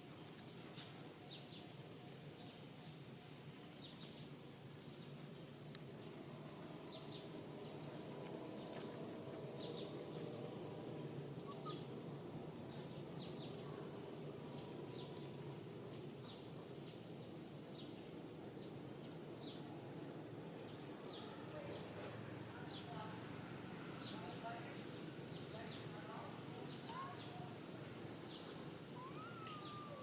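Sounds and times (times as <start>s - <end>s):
low outdoor background hum: 0.0s - 30.0s.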